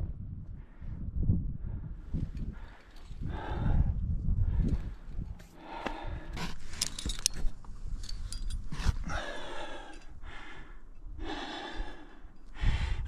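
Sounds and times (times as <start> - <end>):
climbing gear clinking: 2.3 - 3.3, 6.3 - 12.6
heavy strained breathing: 8.4 - 13.0.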